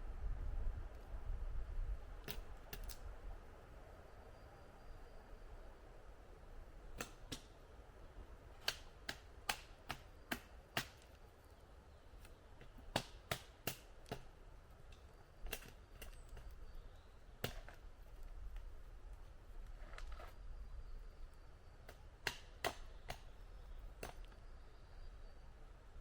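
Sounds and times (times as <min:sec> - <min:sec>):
sharp wood knocks and snaps: 0:07.0 - 0:07.5, 0:08.6 - 0:11.2, 0:12.2 - 0:14.3, 0:17.4 - 0:17.8, 0:21.9 - 0:23.3.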